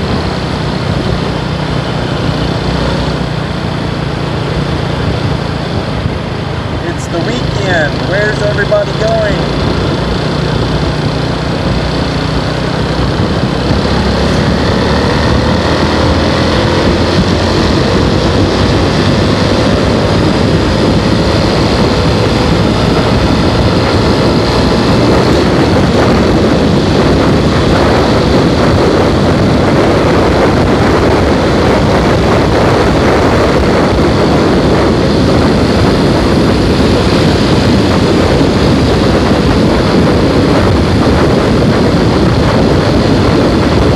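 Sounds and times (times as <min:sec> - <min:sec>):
motorcycle engine: 0:00.0 - 0:43.9
wind rush over microphone: 0:00.0 - 0:43.9.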